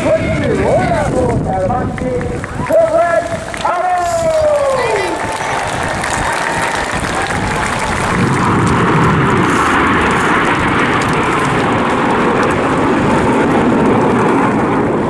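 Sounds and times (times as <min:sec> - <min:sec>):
jets flying over: 0:00.0 - 0:15.0.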